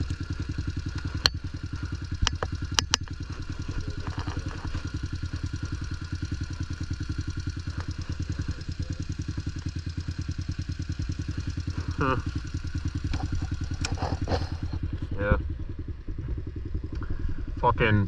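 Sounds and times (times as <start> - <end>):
pit bike engine idling: 0.0 - 18.0
sharp clicks: 2.2 - 3.2.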